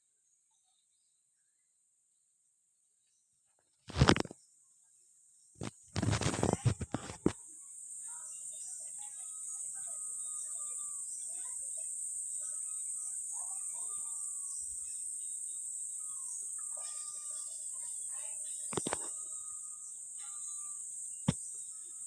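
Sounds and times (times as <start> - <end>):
high-pitched insect drone: 5.6 - 22.0.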